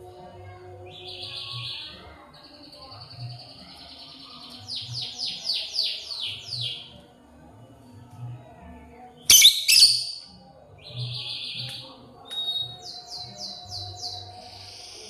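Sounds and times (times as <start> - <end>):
lovebird chirping: 9.3 - 10.2.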